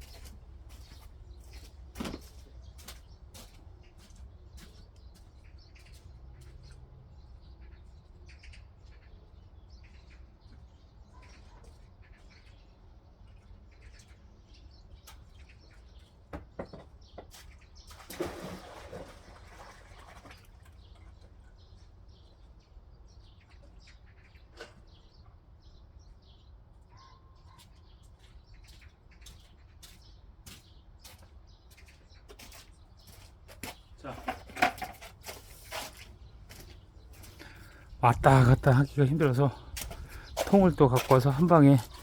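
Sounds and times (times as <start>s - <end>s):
shovel scraping soil: 34.1s - 36.2s.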